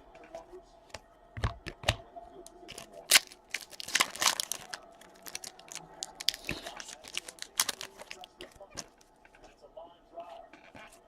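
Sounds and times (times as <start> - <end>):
plastic packaging crinkling and tearing: 2.7 - 9.0.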